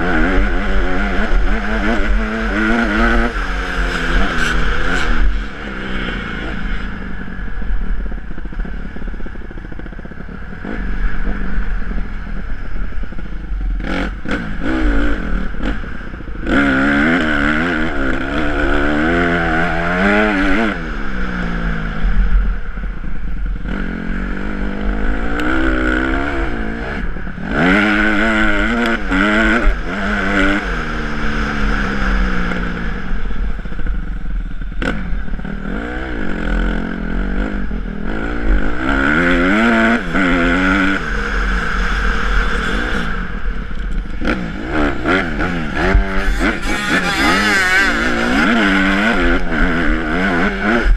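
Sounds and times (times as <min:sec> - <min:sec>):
motocross bike engine revving: 0:00.0 - 0:08.8, 0:09.6 - 0:22.3, 0:23.6 - 0:33.6, 0:34.8 - 0:50.9.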